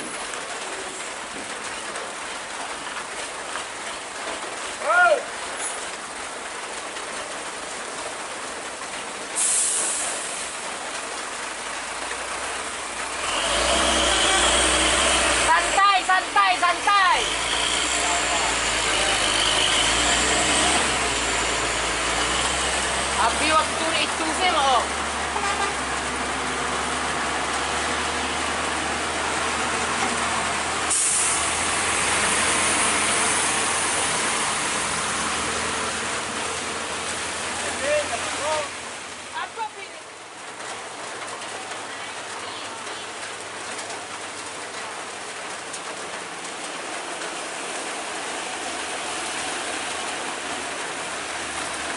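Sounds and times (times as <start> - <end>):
diesel engine rumbling: 0.0 - 51.9
air brakes hissing: 9.4 - 10.4.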